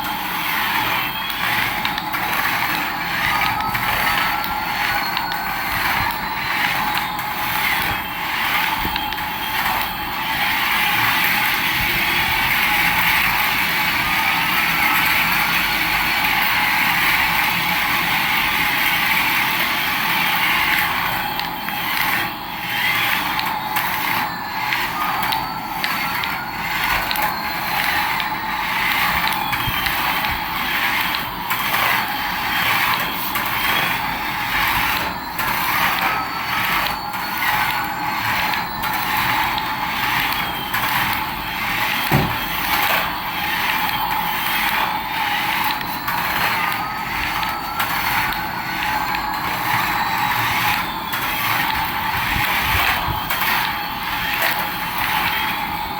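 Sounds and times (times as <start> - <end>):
toy motor whirring and clicking: 0.0 - 55.9.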